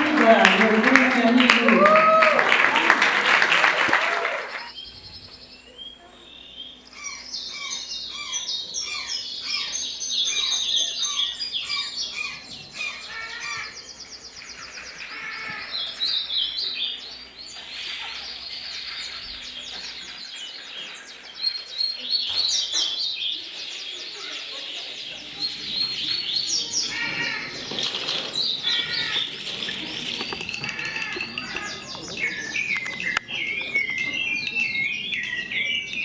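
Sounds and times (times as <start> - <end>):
many birds chirping: 0.0 - 36.0.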